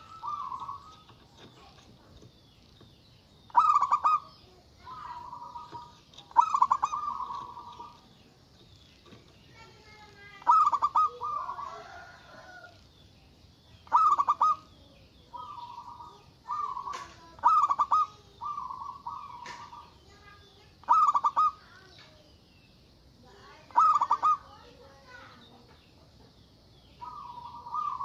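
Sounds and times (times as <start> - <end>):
dove cooing: 0.0 - 2.3, 3.5 - 8.5, 9.6 - 12.8, 13.8 - 21.9, 23.5 - 25.2, 26.9 - 28.0.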